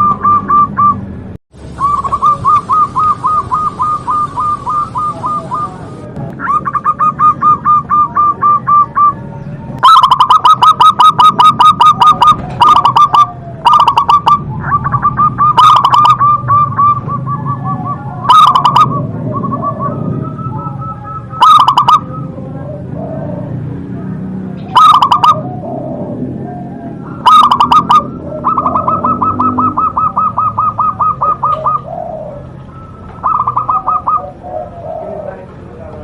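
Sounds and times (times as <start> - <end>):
dove cooing: 0.0 - 36.0.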